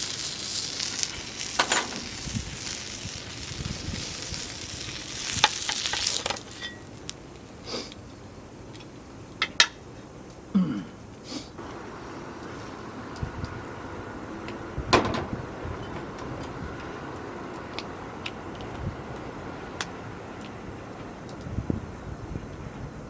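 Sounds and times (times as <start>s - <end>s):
dumplings sizzling in a pan: 0.0s - 7.9s
sharp clicks and knocks: 14.5s - 21.5s.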